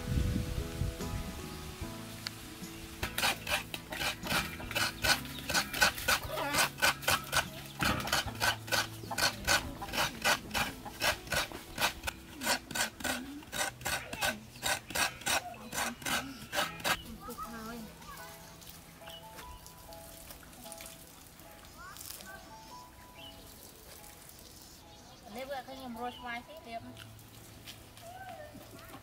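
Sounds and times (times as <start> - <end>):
coconut rasping on hand grater: 3.0 - 17.1.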